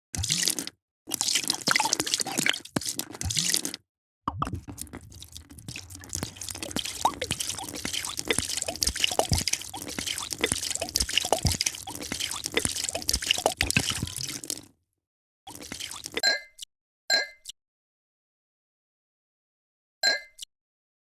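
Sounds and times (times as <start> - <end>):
drink pouring and bubbling: 0.2 - 14.7, 15.5 - 16.2.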